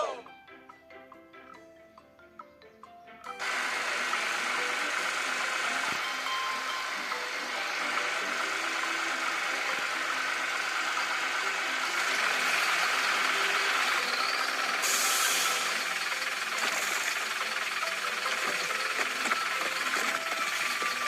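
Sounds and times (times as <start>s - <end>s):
heavy vehicle engine running: 3.4s - 21.0s
hiss of air: 14.8s - 15.7s.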